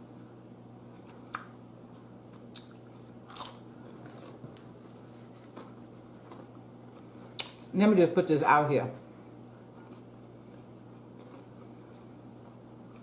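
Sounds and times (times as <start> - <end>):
steady low hum: 0.0 - 13.0
crunching bites and chewing: 2.3 - 7.7, 9.8 - 13.0.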